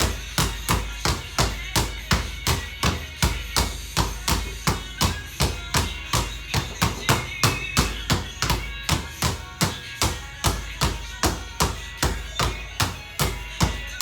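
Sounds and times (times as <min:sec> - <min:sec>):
basketball bouncing on court: 0:00.0 - 0:14.0.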